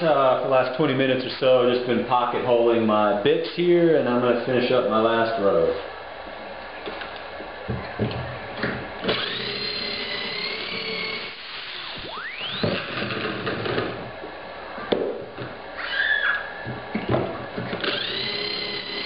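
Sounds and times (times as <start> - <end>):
drill motor whining: 9.0 - 14.0, 17.6 - 19.0.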